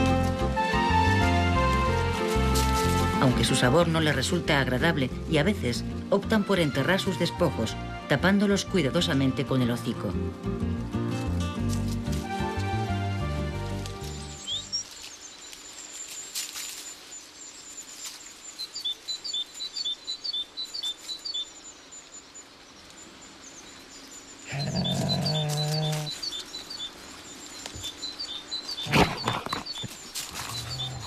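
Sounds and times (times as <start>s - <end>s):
small birds chirping: 1.9s - 31.0s.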